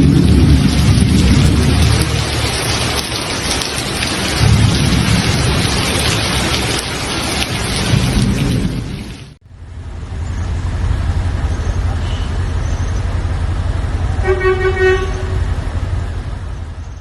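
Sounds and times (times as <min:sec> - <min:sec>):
deep low rumbles: 0:00.0 - 0:14.2
heavy rain pouring: 0:00.0 - 0:17.0.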